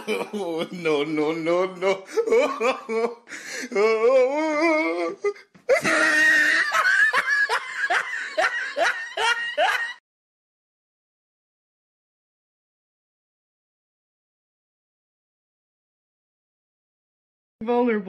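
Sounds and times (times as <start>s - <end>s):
person laughing hard: 0.0s - 10.0s.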